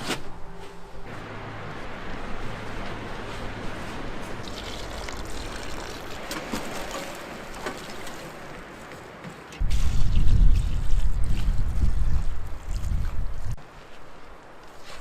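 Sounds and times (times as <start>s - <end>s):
water lapping and trickling: 2.1s - 15.0s
water drips and splashes: 4.4s - 8.7s
wind on microphone: 9.6s - 13.6s.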